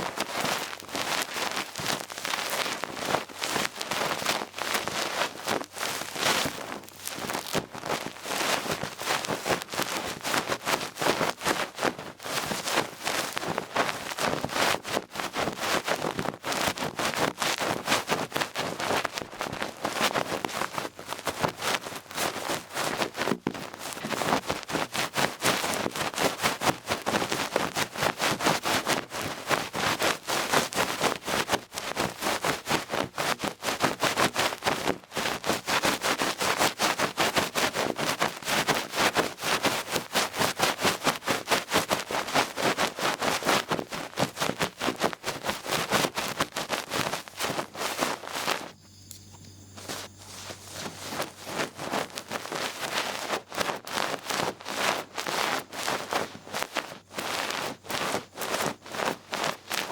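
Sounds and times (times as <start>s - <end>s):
ear pick brushing microphone: 30.0s - 59.9s.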